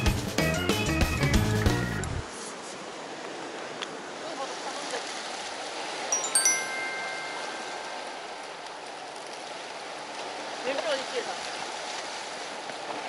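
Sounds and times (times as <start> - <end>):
waves washing: 2.3 - 13.0
bright chime ringing: 6.1 - 8.4.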